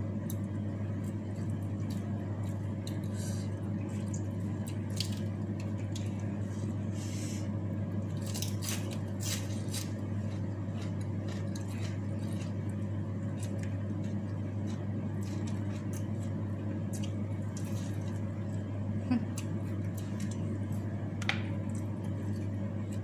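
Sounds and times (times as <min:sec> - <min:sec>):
steady low hum: 0:00.0 - 0:23.0
person chewing with wet clicks: 0:00.2 - 0:06.2, 0:08.2 - 0:18.7, 0:19.3 - 0:20.9.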